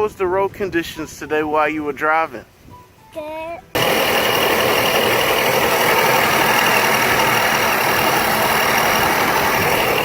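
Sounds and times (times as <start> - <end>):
electric toy car motor whirring: 3.8 - 10.0.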